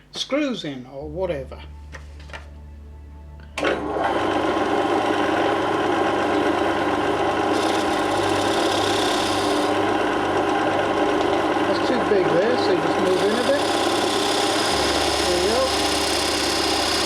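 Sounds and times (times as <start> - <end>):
lathe machine hum: 3.6 - 17.0.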